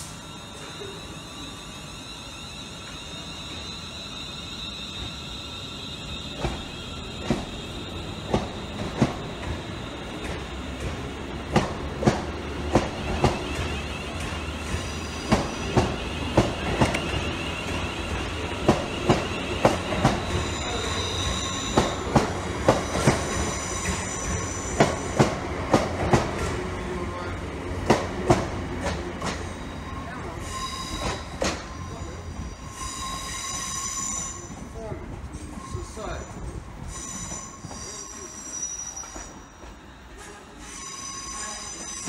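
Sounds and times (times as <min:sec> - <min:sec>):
train rumble: 0:04.6 - 0:42.0
train wheels clicking over rail joint: 0:08.3 - 0:17.8, 0:31.0 - 0:31.7.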